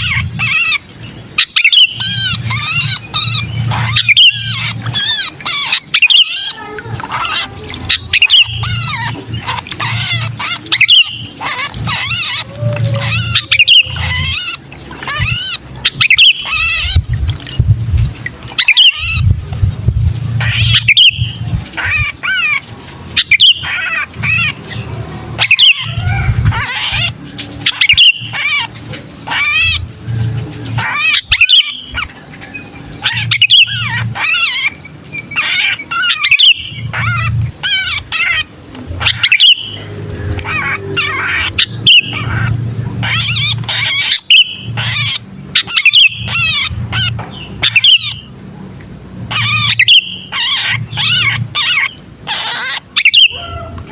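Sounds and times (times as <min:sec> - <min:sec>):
bird harsh distress calls: 0:00.0 - 0:17.2, 0:18.5 - 0:19.4, 0:20.2 - 0:53.9
low rumble: 0:16.4 - 0:22.2, 0:24.1 - 0:27.7, 0:38.6 - 0:43.9.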